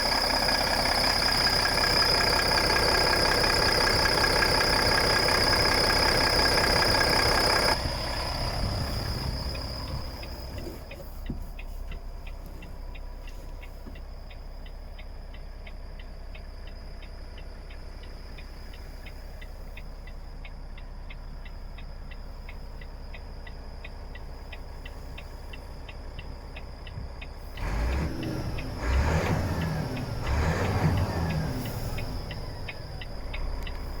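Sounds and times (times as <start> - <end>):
fast ticking: 0.0 - 10.6
diesel truck engine running: 0.0 - 34.0.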